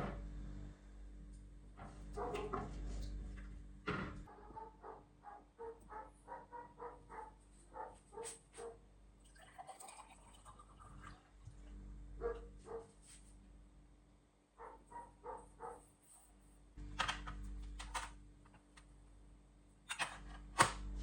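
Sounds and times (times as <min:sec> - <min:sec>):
dog barking faintly: 0:02.1 - 0:02.7, 0:04.3 - 0:08.9, 0:12.2 - 0:13.0, 0:14.6 - 0:16.4.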